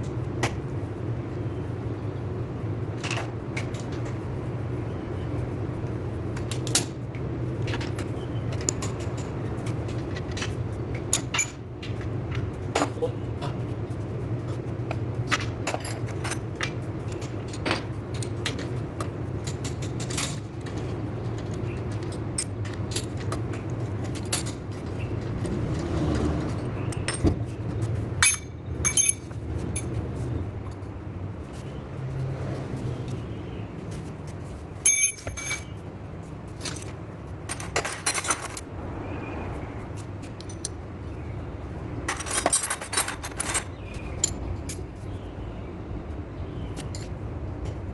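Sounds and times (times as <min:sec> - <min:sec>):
low background hum: 0:00.0 - 0:47.9
metal tools clinking: 0:28.2 - 0:30.0, 0:34.8 - 0:35.8, 0:37.5 - 0:38.6, 0:42.1 - 0:44.8.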